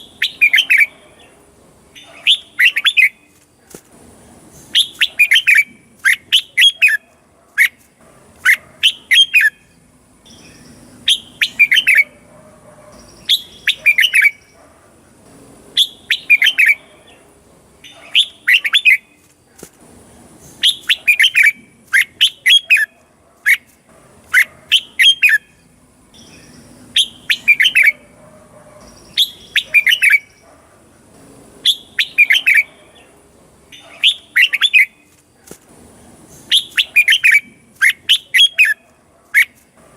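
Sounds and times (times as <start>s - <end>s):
bird singing: 0.0s - 3.4s, 4.5s - 7.8s, 8.4s - 15.2s, 15.8s - 19.3s, 20.4s - 23.7s, 24.3s - 30.6s, 31.6s - 35.2s, 36.2s - 39.6s.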